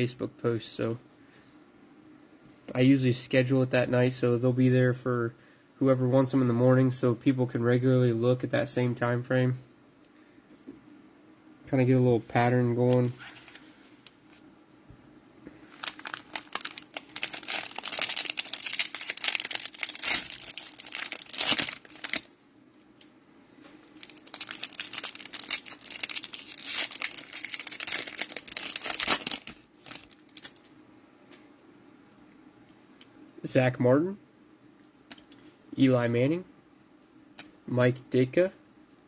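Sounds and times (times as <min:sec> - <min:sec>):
cellophane wrappers tearing and crinkling: 0:15.7 - 0:22.3, 0:24.0 - 0:30.7.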